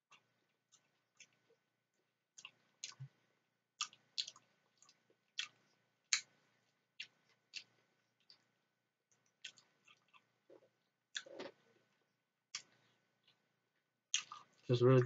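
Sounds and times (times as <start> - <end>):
wet chewing mouth clicks and smacks: 0.1 - 1.6, 2.3 - 3.2, 3.8 - 6.4, 7.0 - 8.5, 9.1 - 11.6, 12.5 - 13.4, 14.1 - 14.7.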